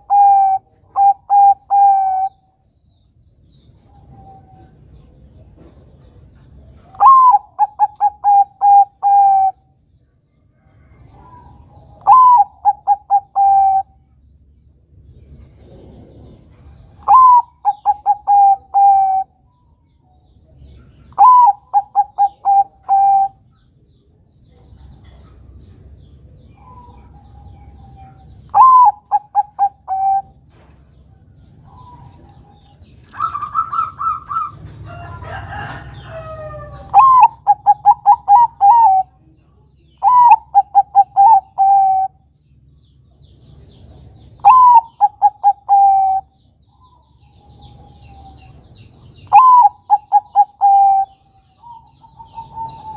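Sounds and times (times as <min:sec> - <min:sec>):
dove cooing: 0:00.0 - 0:02.5, 0:06.8 - 0:09.7, 0:11.0 - 0:14.0, 0:15.6 - 0:19.3, 0:21.0 - 0:23.4, 0:26.5 - 0:30.6, 0:31.6 - 0:39.2, 0:40.0 - 0:42.2, 0:44.4 - 0:48.6, 0:49.2 - 0:52.9.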